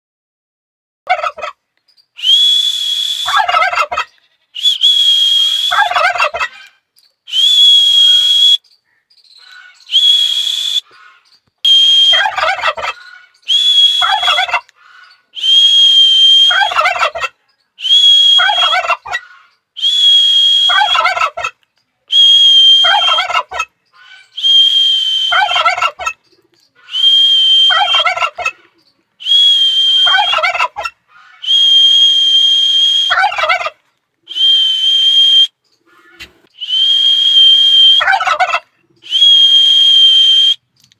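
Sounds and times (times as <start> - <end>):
turkey gobbling: 1.1 - 1.6, 3.2 - 4.2, 5.4 - 6.9, 9.4 - 10.0, 10.7 - 11.4, 12.0 - 15.4, 16.4 - 17.5, 18.2 - 19.6, 20.6 - 21.7, 22.8 - 34.4, 35.4 - 39.1
steady high whistle: 2.2 - 3.4, 4.6 - 5.9, 7.3 - 8.6, 9.9 - 10.9, 11.6 - 12.5, 13.5 - 14.4, 15.4 - 16.8, 17.8 - 18.7, 19.8 - 21.0, 22.1 - 23.3, 24.4 - 25.6, 26.9 - 28.0, 29.2 - 30.4, 31.4 - 33.2, 34.3 - 35.6, 36.6 - 38.1, 39.0 - 40.7.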